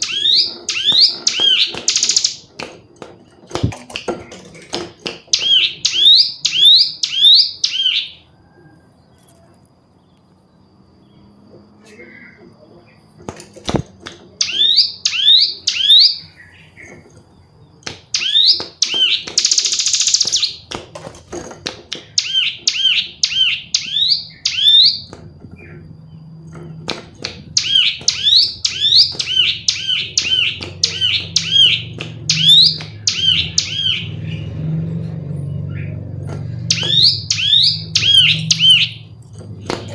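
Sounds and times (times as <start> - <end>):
bird high chirps: 0.0 - 2.5, 5.3 - 9.4, 14.4 - 20.7, 22.0 - 26.4, 27.4 - 34.7, 36.6 - 39.9
bird buzzy rattle: 0.0 - 7.1, 18.0 - 33.8.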